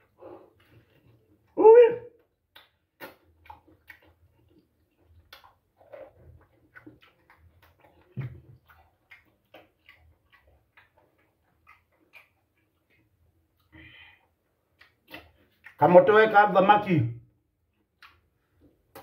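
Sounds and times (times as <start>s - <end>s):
chewing mouth clicks and lip smacks: 2.2s - 15.8s, 17.7s - 19.0s.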